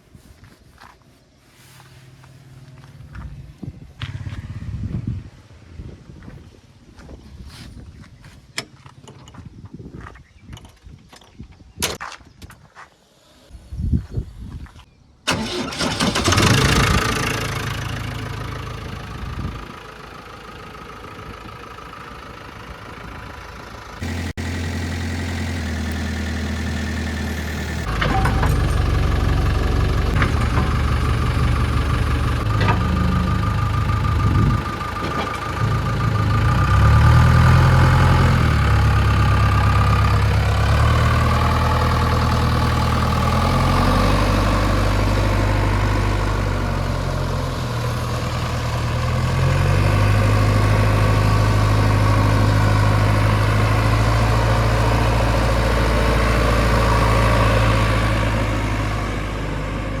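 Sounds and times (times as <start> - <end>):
diesel engine revving under load: 15.3 - 60.0.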